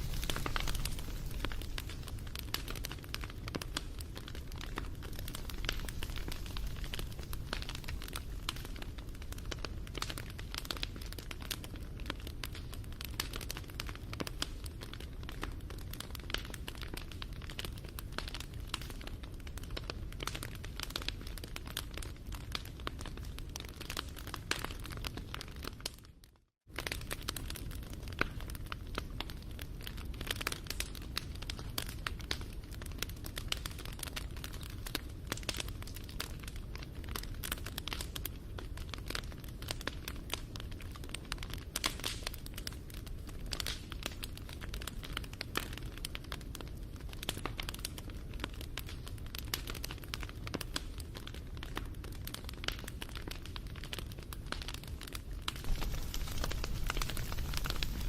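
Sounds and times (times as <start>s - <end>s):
wood fire crackling: 0.0s - 26.1s, 26.7s - 58.0s
low steady rumble: 55.6s - 58.0s.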